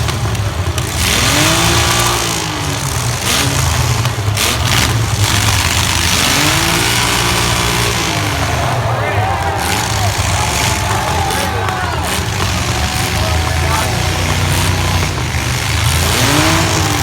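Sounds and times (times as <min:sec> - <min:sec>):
truck engines revving: 0:00.0 - 0:17.0.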